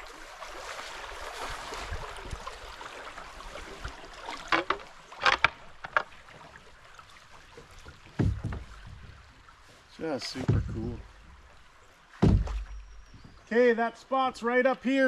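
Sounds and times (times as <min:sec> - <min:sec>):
rustle of branches and water: 0:00.0 - 0:15.0
canoe scrapes and knocks: 0:04.2 - 0:06.6, 0:07.9 - 0:11.2.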